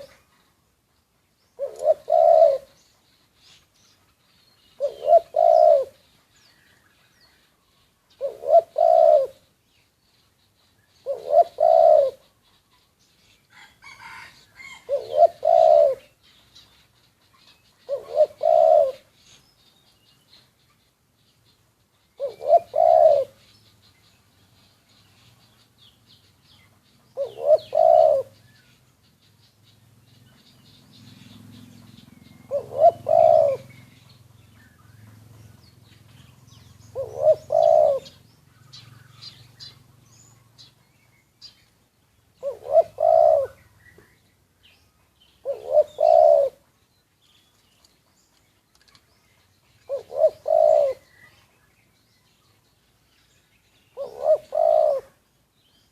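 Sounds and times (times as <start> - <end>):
dove cooing: 0.0 - 0.3, 1.6 - 2.8, 4.7 - 6.0, 8.1 - 9.5, 11.0 - 12.7, 13.5 - 16.2, 17.7 - 19.2, 22.2 - 23.4, 27.1 - 28.4, 31.8 - 34.2, 36.5 - 40.7, 42.4 - 44.1, 45.4 - 46.7, 49.8 - 51.4, 53.9 - 55.2
faint bird chirps: 0.0 - 55.9.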